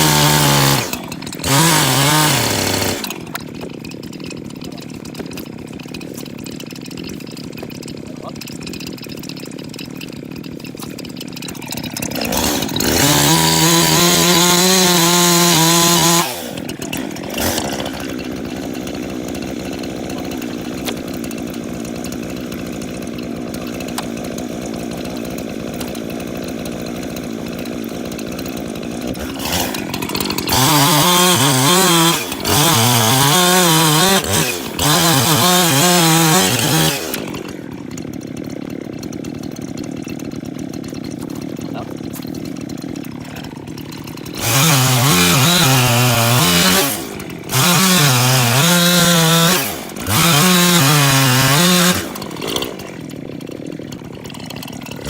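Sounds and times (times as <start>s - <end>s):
chainsaw cutting wood: 0.0s - 55.0s
chainsaw idling and revving: 0.0s - 55.0s.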